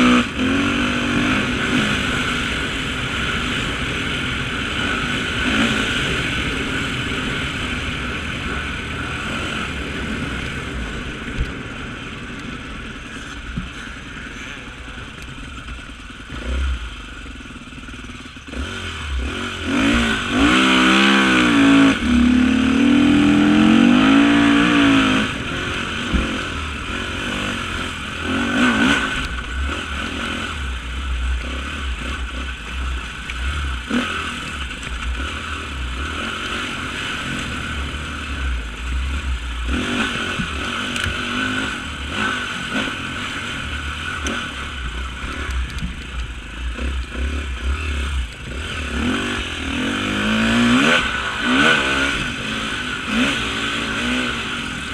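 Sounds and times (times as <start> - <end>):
motorcycle engine revving: 0.0 - 54.9
knocks and clatter from bike: 10.4 - 16.6, 44.1 - 47.4.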